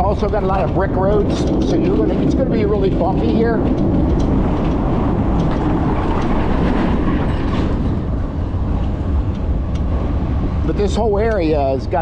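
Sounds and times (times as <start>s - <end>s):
bike rattling: 0.0s - 12.0s
low rumble: 0.0s - 12.0s.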